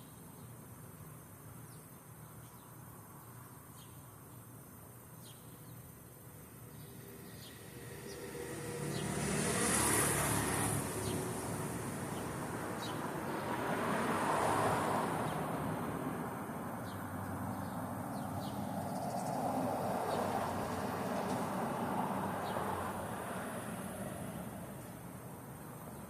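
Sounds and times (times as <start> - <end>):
vehicles passing: 6.0 - 26.0.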